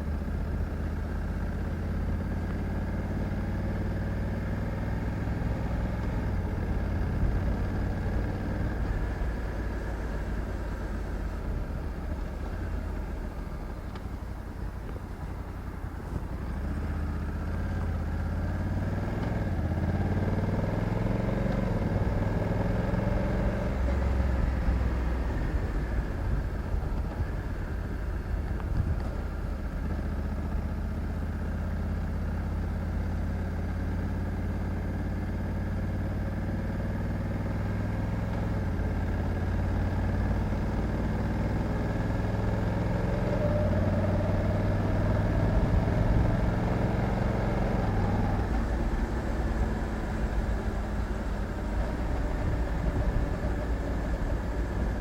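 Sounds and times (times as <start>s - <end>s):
motorcycle engine running: 0.0s - 55.0s
road and wind noise: 0.0s - 55.0s.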